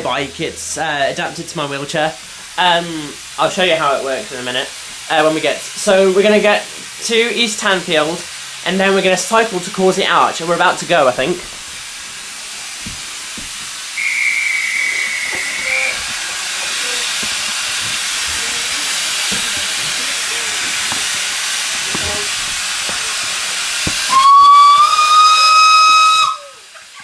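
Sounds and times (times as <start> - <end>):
steam locomotive hissing: 0.0 - 27.0
steam whistle blowing: 13.8 - 27.0
high whistle tone: 14.0 - 17.1, 24.0 - 26.6.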